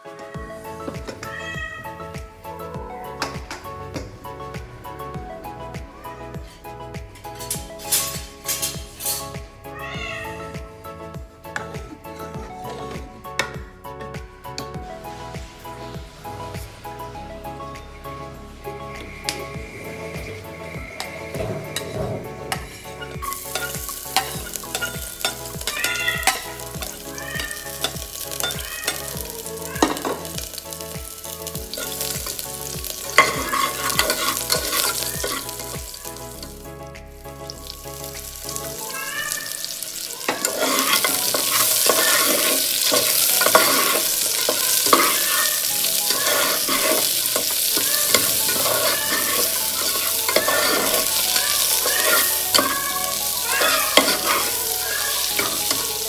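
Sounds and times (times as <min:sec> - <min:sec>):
garlic and onion sizzling in oil: 0:07.2 - 0:09.5, 0:18.8 - 0:56.0
spatula scraping steel pan: 0:40.3 - 0:45.3, 0:46.0 - 0:51.1.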